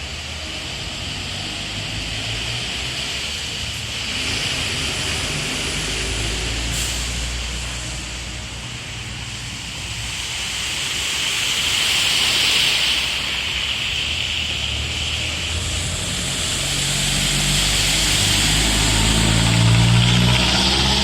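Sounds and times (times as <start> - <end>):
engine hum: 0.0 - 10.8, 12.4 - 21.0
heavy engine drone: 0.0 - 21.0
tyres spraying through water: 0.0 - 21.0.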